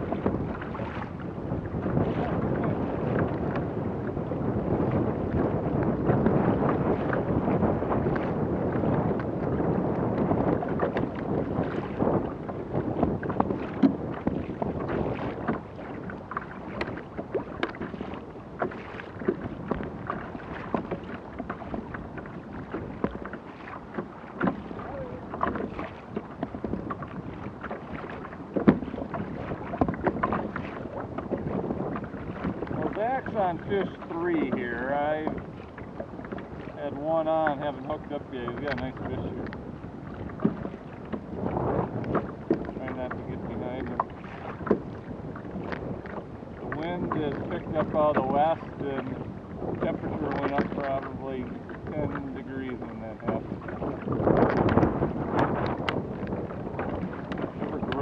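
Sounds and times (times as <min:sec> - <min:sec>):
water lapping against kayak hull: 0:00.0 - 0:58.0
wind buffeting microphone: 0:00.0 - 0:58.0
small splashes and knocks: 0:13.2 - 0:34.6, 0:43.8 - 0:48.3, 0:49.8 - 0:51.9.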